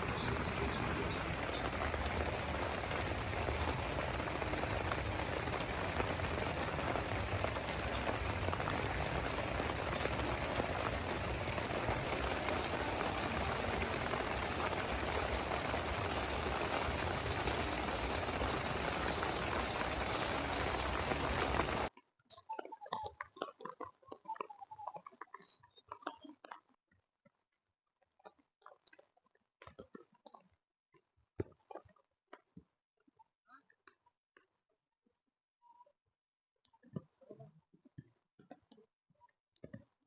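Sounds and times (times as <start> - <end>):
heavy rain falling: 0.0 - 21.9.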